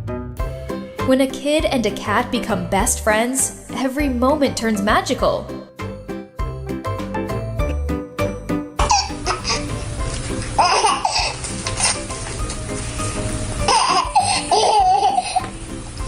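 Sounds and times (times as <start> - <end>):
baby laughing and squealing: 8.8 - 9.8, 10.6 - 12.1, 13.6 - 15.5.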